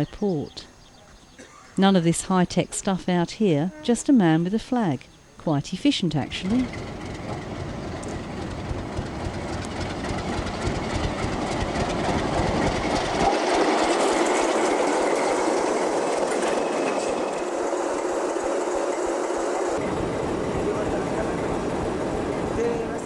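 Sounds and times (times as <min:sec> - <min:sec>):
train wheels clicking on rails: 0:06.0 - 0:23.0.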